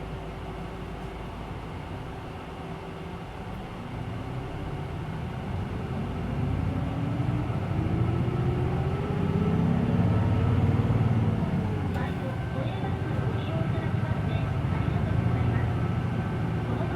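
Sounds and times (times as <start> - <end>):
bus engine revving: 3.7 - 16.9.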